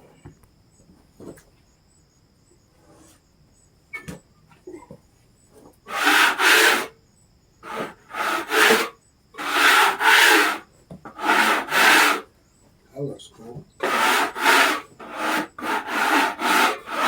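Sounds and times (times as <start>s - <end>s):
brush scraping wood: 5.9s - 6.9s, 7.6s - 12.3s, 13.8s - 17.0s.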